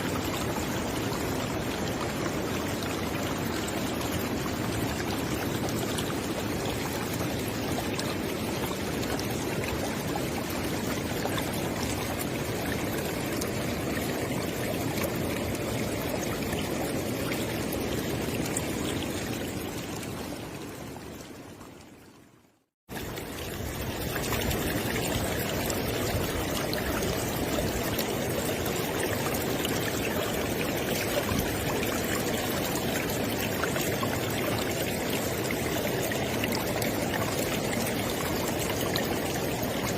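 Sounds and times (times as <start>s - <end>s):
river water rushing: 23.0s - 39.9s.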